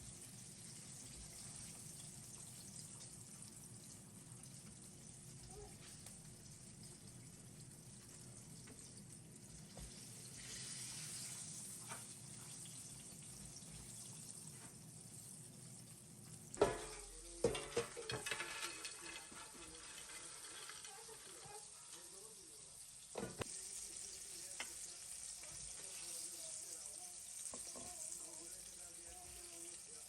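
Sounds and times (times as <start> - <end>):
food sizzling in hot oil: 0.0 - 30.0
utensil knocking against a pan: 16.6 - 18.4.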